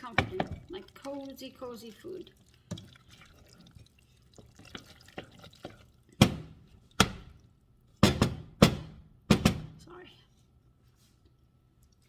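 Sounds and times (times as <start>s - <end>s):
utensil knocking against a pot: 0.0s - 0.7s, 6.2s - 7.3s, 8.0s - 9.8s.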